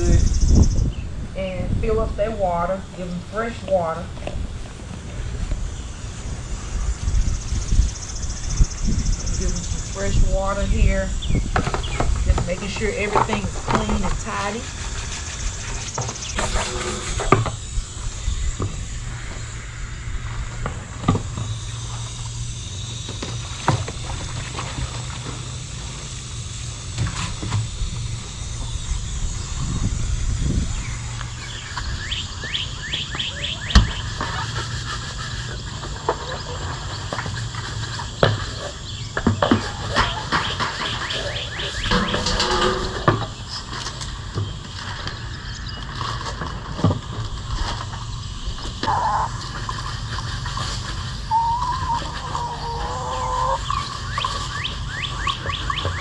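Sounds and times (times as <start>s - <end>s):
bird chirping: 30.7s - 34.2s, 38.6s - 43.7s
hens calling: 38.6s - 43.7s, 48.8s - 56.0s.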